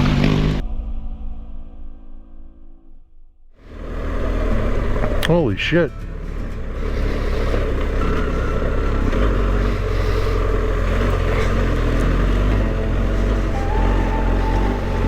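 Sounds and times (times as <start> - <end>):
motorcycle engine rumbling under load: 3.6 - 15.0.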